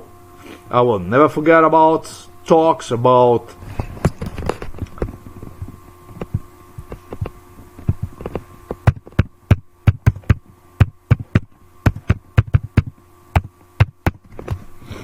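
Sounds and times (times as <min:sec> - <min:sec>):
low electrical hum: 0:00.0 - 0:15.0
rapid irregular knocks and thumps: 0:04.1 - 0:14.6.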